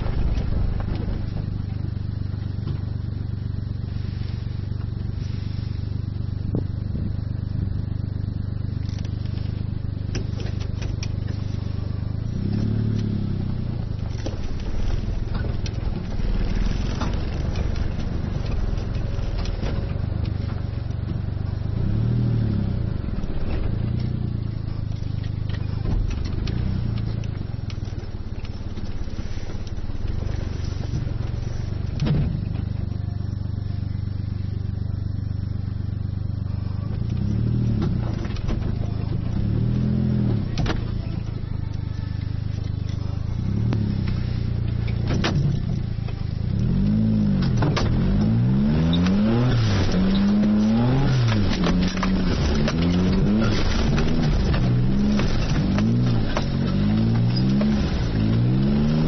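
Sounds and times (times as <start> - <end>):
car engine revving: 0.0 - 59.0
knocks and rattles: 37.0 - 46.6, 47.3 - 59.0.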